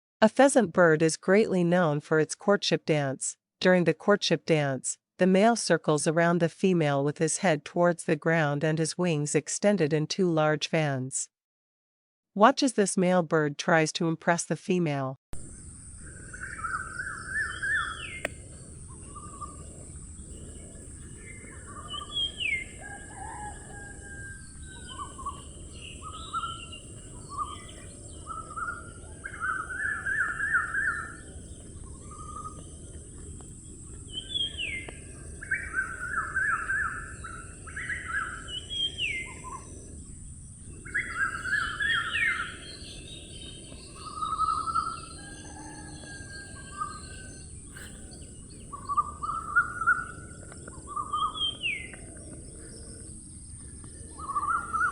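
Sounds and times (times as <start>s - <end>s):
low rumble: 15.4s - 36.2s
birds trilling and whistling: 15.6s - 54.9s.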